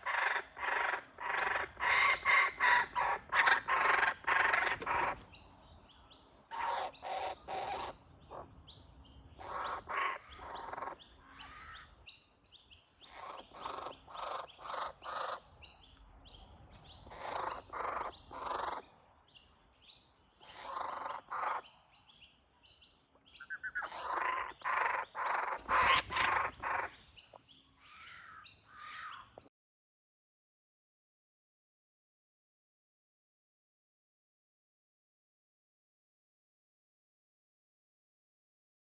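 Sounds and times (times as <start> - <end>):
bird calling in rapid notes: 23.4 - 27.0.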